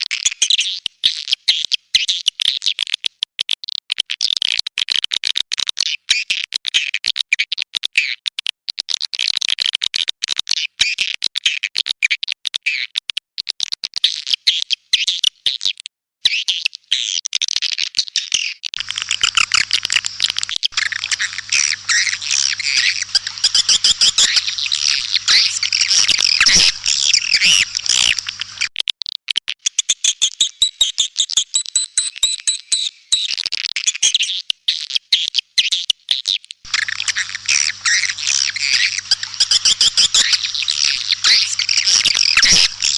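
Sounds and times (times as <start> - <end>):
low electrical hum: 18.8 - 28.7, 36.7 - 42.9
swiftlet calls twittering: 18.8 - 28.7, 36.7 - 42.9.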